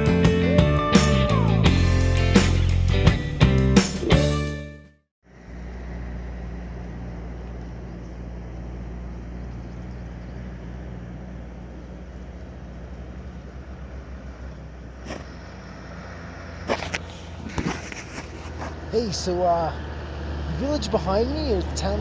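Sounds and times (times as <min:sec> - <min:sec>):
vehicle engine idling: 0:05.2 - 0:22.0.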